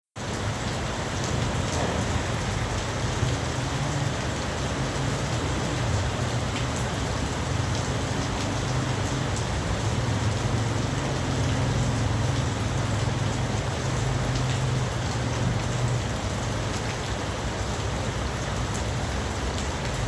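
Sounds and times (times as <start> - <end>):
heavy rain falling: 0.2 - 20.0
sharp water drips: 0.2 - 20.0.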